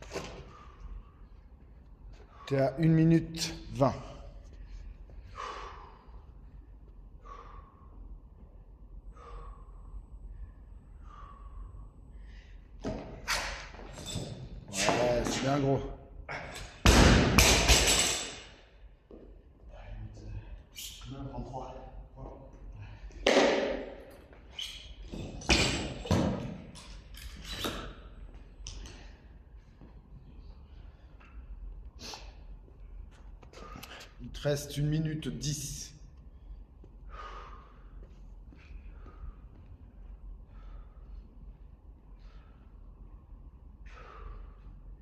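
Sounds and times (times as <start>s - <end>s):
person breathing hard: 4.2s - 12.9s, 36.4s - 41.4s, 43.8s - 45.0s.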